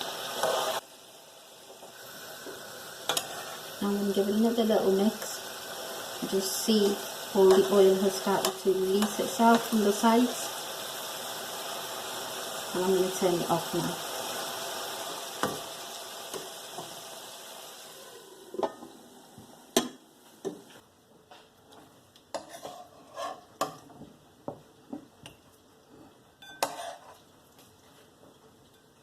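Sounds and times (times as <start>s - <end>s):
food sizzling in pan: 0.0s - 20.8s, 22.3s - 24.0s, 26.4s - 28.0s
spoon scraping and clinking pan: 22.3s - 23.8s, 26.4s - 27.2s.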